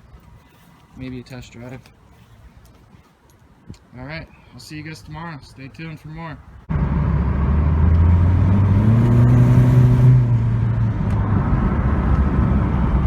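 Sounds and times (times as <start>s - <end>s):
vehicle engine revving: 6.7s - 13.0s.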